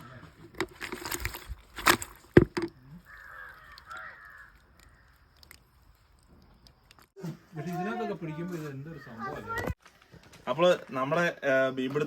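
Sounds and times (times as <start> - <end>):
bird calls: 2.8 - 5.4, 8.8 - 9.7.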